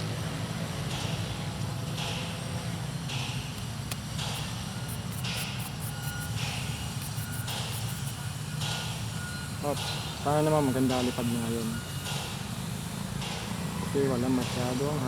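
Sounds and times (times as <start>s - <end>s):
small electric motors humming: 3.6s - 15.0s.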